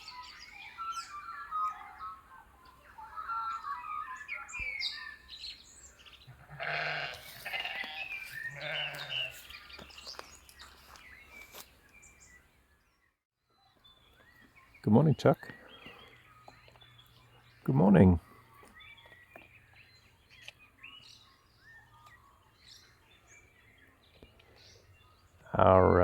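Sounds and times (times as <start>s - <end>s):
birds chirping: 0.0s - 26.0s
sheep bleating: 6.3s - 9.4s.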